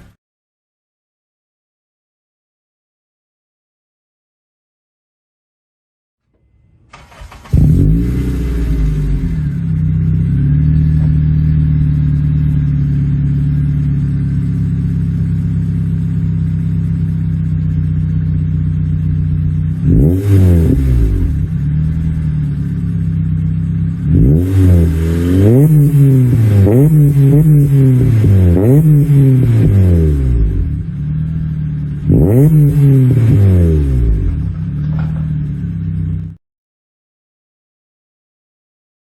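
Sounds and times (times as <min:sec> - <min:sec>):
car engine starting: 0:06.4 - 0:36.4
engine revving: 0:06.9 - 0:15.6, 0:19.0 - 0:36.3
car engine idling: 0:06.9 - 0:36.4.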